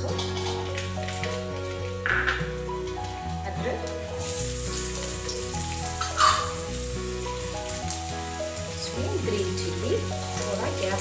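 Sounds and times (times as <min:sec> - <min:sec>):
garlic sizzling in hot oil: 0:00.0 - 0:11.0
oil crackle: 0:00.0 - 0:11.0.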